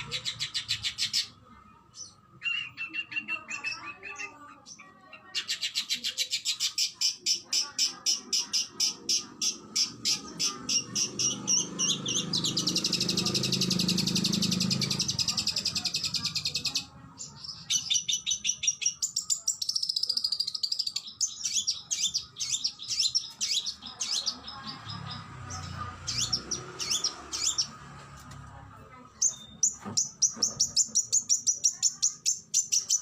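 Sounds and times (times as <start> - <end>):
songbird singing with trills: 5.4 - 27.7, 29.2 - 33.0.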